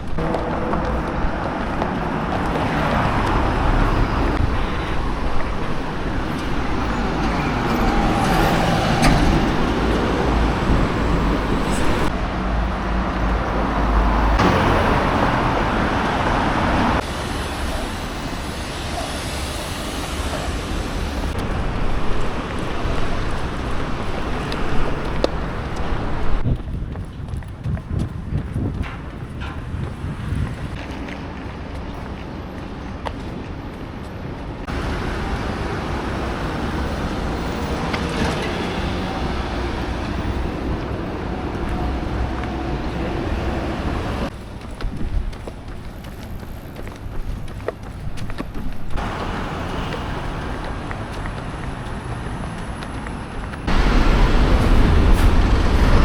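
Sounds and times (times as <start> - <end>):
passing cars and trucks: 0.0 - 56.0.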